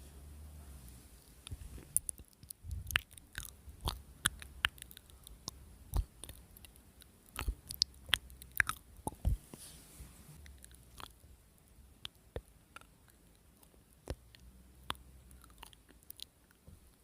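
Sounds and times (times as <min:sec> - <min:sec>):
chewing crunchy food: 0:01.4 - 0:09.3, 0:10.4 - 0:11.2, 0:12.8 - 0:16.6.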